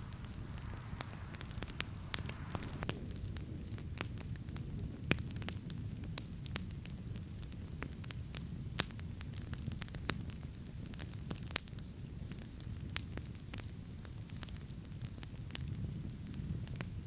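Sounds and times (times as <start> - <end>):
campfire crackling and popping: 0.0 - 3.2
fire low rumble: 0.0 - 5.3.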